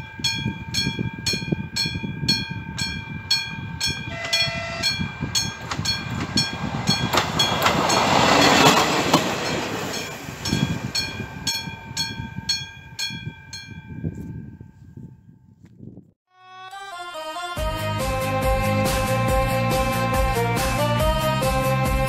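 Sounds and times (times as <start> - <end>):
train passing: 0.0 - 13.0
level crossing warning bell: 0.0 - 14.7.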